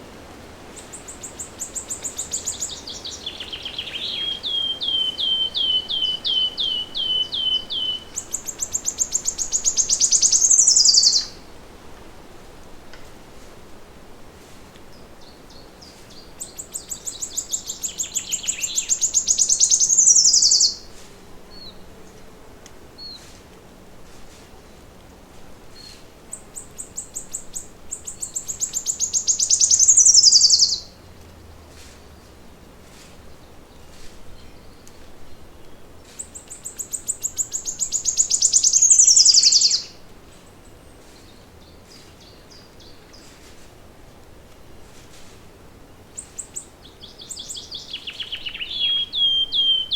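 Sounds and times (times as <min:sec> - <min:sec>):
forest and water ambience hiss: 0:00.0 - 0:49.9
songbird trilling: 0:00.9 - 0:11.4, 0:16.4 - 0:20.9, 0:25.8 - 0:30.9, 0:36.2 - 0:40.0, 0:46.2 - 0:49.9.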